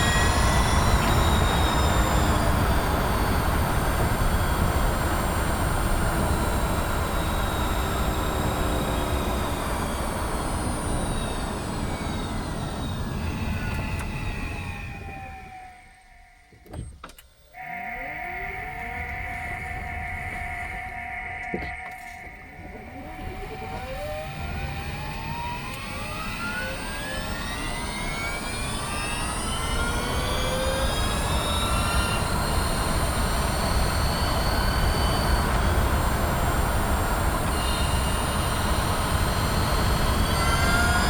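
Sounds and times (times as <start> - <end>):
electric motor whine: 0.0 - 41.0
low cabin rumble: 0.0 - 41.0
two-note tone: 17.6 - 24.3.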